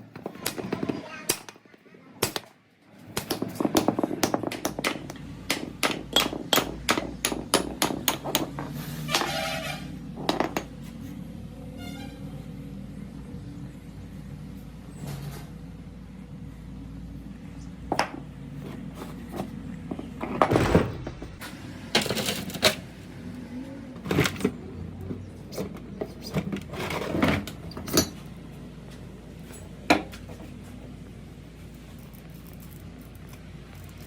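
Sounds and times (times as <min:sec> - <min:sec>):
metal tools clinking and knocking: 0:27.7 - 0:28.3.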